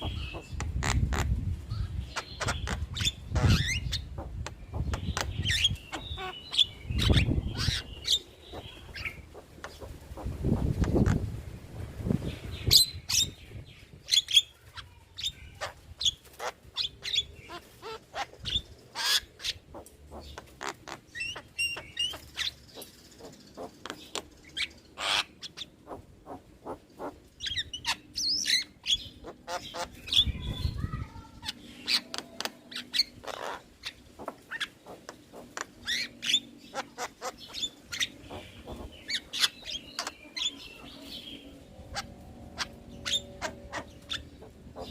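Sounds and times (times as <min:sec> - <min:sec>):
myna calling: 0:00.0 - 0:01.3, 0:29.2 - 0:44.9.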